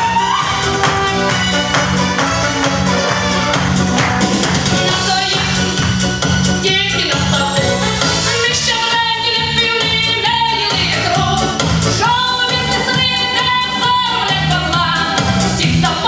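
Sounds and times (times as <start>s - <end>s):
person singing: 0.0s - 5.9s
backing track with steady beat: 0.0s - 16.0s.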